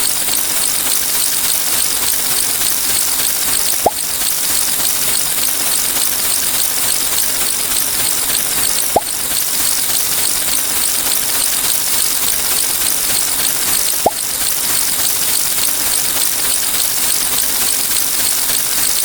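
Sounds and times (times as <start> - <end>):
cartoon pop blip: 3.8 - 4.0, 8.9 - 9.2, 14.0 - 14.3.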